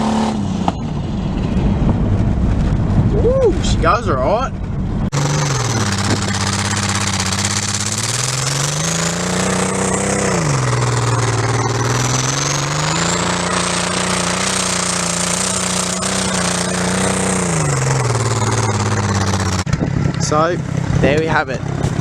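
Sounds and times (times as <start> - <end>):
car engine revving under load: 0.0 - 22.0
turbo whistle: 11.0 - 19.6.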